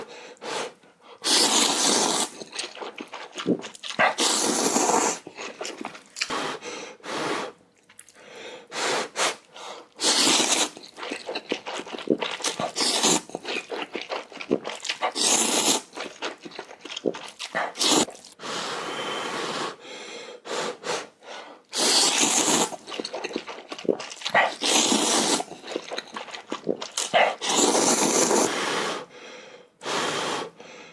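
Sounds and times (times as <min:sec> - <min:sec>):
noodle slurping: 0:00.0 - 0:18.4, 0:21.7 - 0:29.1
chewing and smacking: 0:01.4 - 0:06.3, 0:07.7 - 0:08.2, 0:10.0 - 0:18.4, 0:22.0 - 0:28.3.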